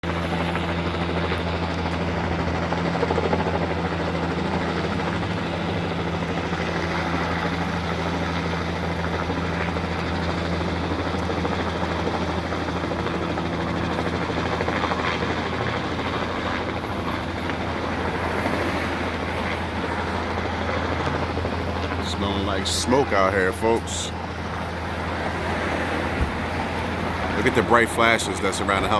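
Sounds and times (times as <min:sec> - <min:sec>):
helicopter rotor drone: 0:00.0 - 0:28.9.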